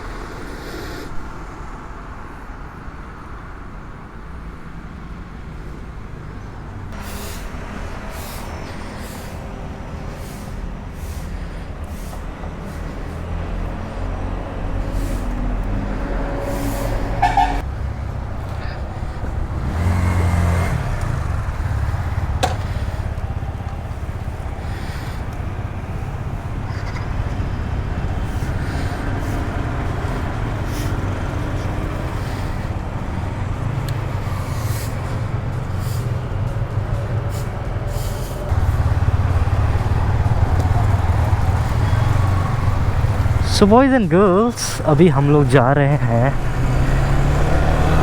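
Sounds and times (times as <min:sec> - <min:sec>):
motorcycle engine running: 0:17.2 - 0:48.0.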